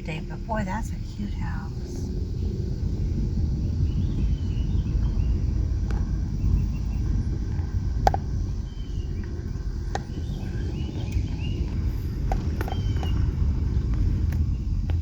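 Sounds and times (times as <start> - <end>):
car driving slowly: 0.0 - 15.0
bird chirps: 3.4 - 7.2, 8.4 - 11.8, 12.5 - 14.8.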